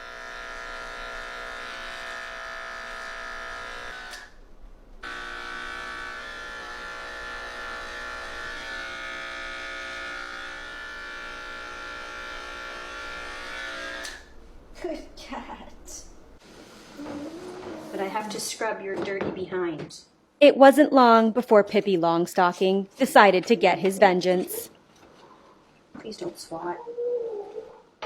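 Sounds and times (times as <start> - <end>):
electric clippers buzzing: 0.0 - 4.4, 5.0 - 14.4.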